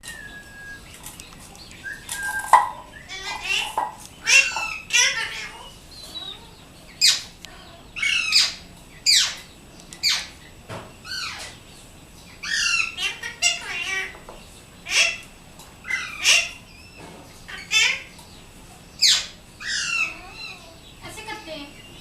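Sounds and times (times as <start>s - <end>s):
parakeet squawking: 2.0s - 9.4s, 10.0s - 10.4s, 12.4s - 14.2s, 14.8s - 15.2s, 15.8s - 16.7s, 17.5s - 18.2s, 19.0s - 21.4s.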